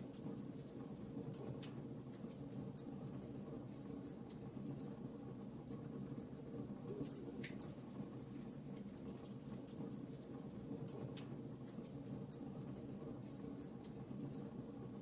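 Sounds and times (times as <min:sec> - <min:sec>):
fire crackling and popping: 0:05.7 - 0:14.5.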